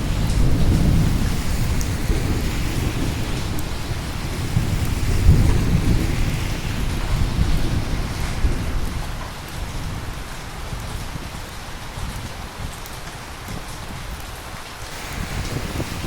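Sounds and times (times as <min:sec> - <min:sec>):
rolling thunder: 0:00.0 - 0:10.2, 0:14.9 - 0:16.0
steady rain: 0:00.0 - 0:16.0.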